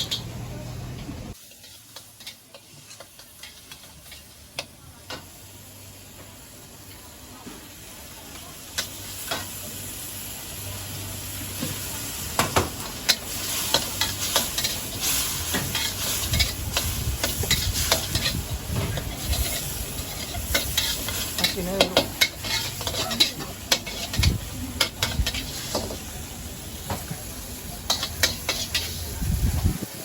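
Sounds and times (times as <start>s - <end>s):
food sizzling in a wok: 0.0s - 30.0s
metal spatula clinking and scraping: 13.0s - 25.8s, 27.9s - 29.0s.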